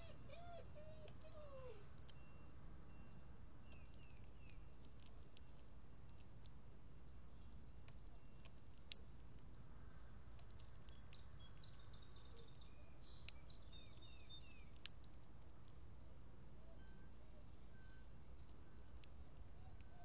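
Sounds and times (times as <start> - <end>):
faint songbird chirps: 0.0 - 15.8, 16.5 - 20.0
sharp clicks: 3.1 - 6.6, 13.2 - 15.8.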